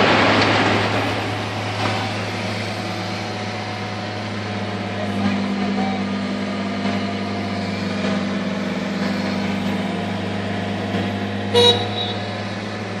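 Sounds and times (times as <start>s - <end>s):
heavy machine engine idling: 0.0s - 13.0s
short horn toot: 11.5s - 12.2s.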